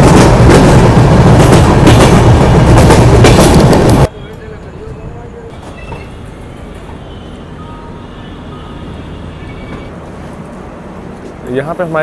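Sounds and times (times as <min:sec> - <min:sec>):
train rumbling: 0:00.0 - 0:12.0
faint platform background noise: 0:04.1 - 0:12.0.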